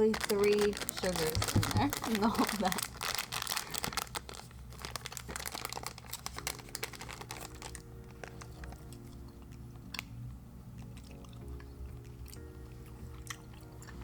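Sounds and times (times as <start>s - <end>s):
candy bag crinkling: 0.0s - 9.3s
soft background music: 0.0s - 14.0s.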